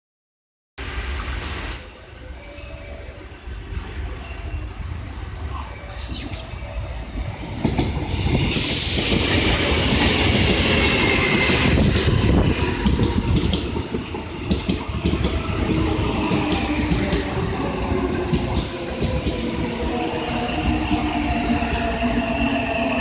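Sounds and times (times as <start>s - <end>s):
electric train passing: 0.8s - 23.0s.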